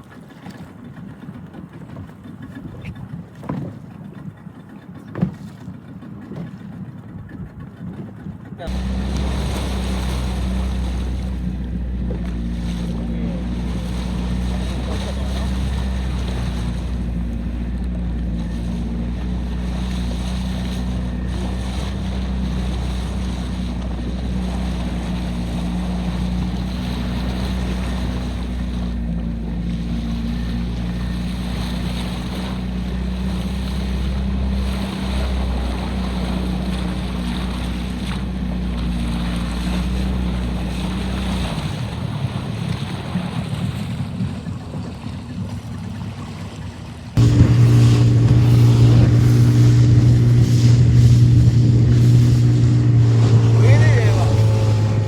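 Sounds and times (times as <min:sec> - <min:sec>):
water rushing past boat: 0:00.0 - 0:55.0
low knock: 0:47.2 - 0:53.6
wind buffeting microphone: 0:47.2 - 0:55.0.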